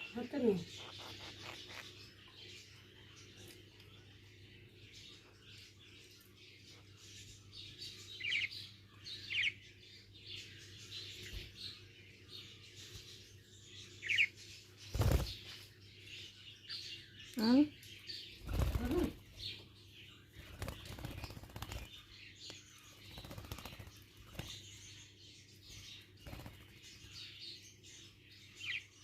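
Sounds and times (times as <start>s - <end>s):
budgerigar twittering: 0.5s - 2.0s.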